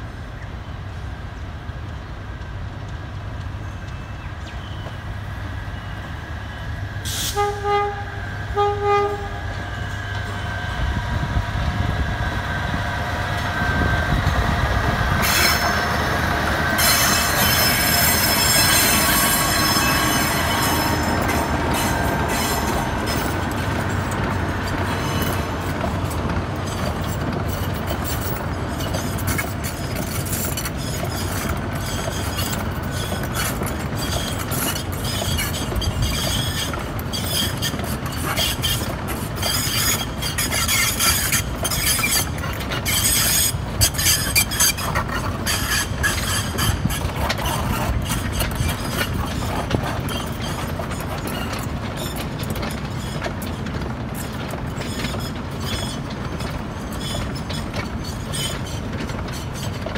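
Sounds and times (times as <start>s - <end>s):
train rolling by: 0.0s - 59.9s
wheels clicking over rail joints: 12.3s - 59.9s
high-pitched wheel squeal: 15.2s - 16.0s, 16.8s - 24.0s, 27.6s - 52.2s, 54.8s - 59.9s.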